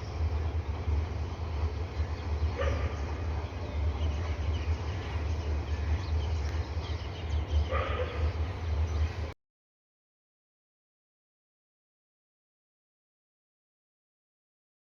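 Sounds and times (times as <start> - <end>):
steady low rumble: 0.0 - 9.4
dog barking: 2.6 - 3.0, 7.7 - 8.3.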